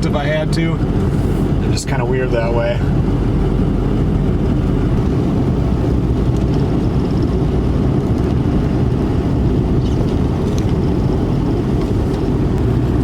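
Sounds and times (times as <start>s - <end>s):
road noise: 0.0s - 13.0s
truck engine rumble: 0.0s - 13.0s.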